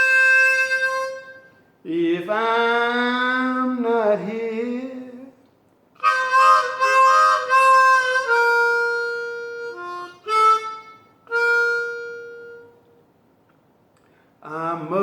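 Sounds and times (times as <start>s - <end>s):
harmonica playing blues: 0.0s - 1.7s, 6.0s - 12.9s.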